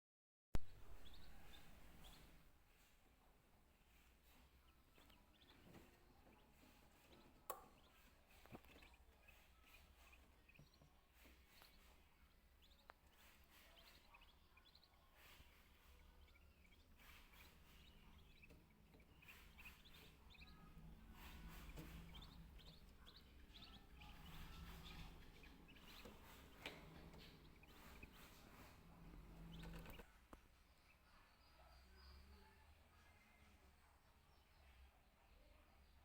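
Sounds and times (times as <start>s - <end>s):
high bird chirps: 0.6s - 2.4s, 4.6s - 30.0s.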